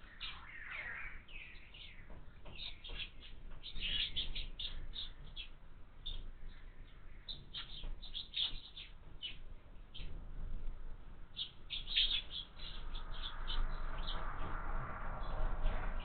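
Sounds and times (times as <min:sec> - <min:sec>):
sparrows chirping: 0:00.0 - 0:14.5
soft rushing noise: 0:10.0 - 0:16.0.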